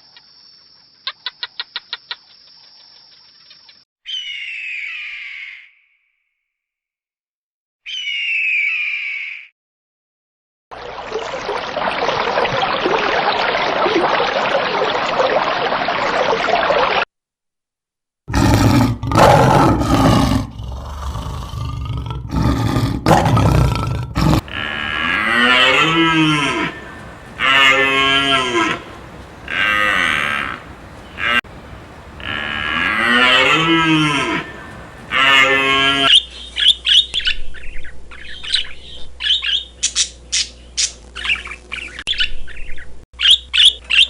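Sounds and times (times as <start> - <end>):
cows mooing: 23.2 - 36.1
even hiss: 24.2 - 36.1.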